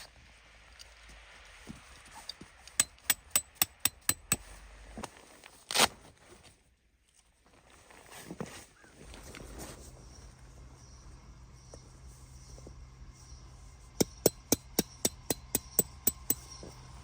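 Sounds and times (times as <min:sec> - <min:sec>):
sharp knocks: 0:14.0 - 0:16.4.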